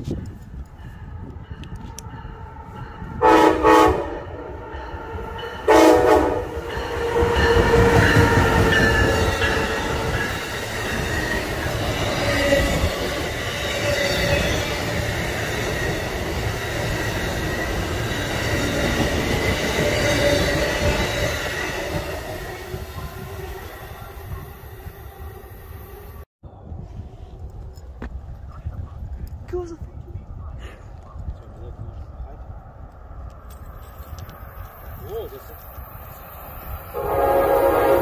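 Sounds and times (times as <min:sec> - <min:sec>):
train wheels rushing on rail: 0:00.0 - 0:26.2
train horn blast: 0:02.6 - 0:10.0, 0:36.9 - 0:38.0.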